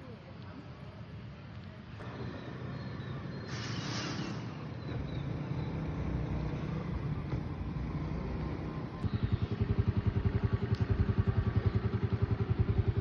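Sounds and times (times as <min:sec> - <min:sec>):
engine running: 0:02.0 - 0:13.0
near pulsing engine beat: 0:06.9 - 0:13.0.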